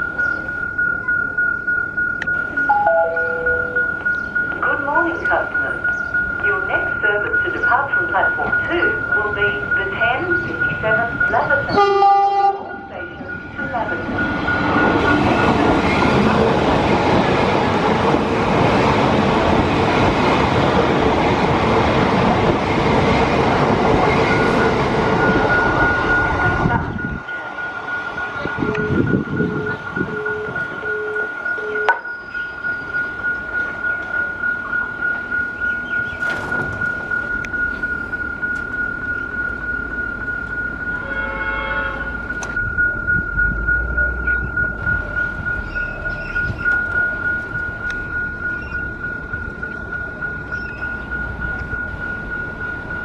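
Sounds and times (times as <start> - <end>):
level crossing bell ringing: 0.0 - 16.4, 36.8 - 53.0
electric train passing: 0.0 - 53.0
train horn: 11.7 - 12.9, 41.0 - 42.2.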